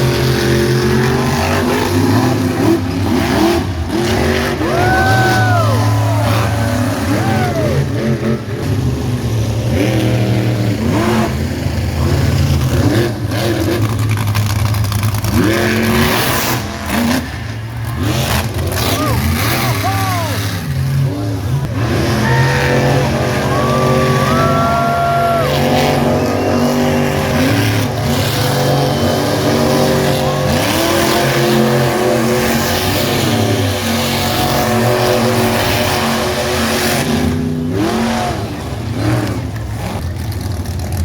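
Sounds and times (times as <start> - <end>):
monster truck engine revving: 0.0 - 41.0.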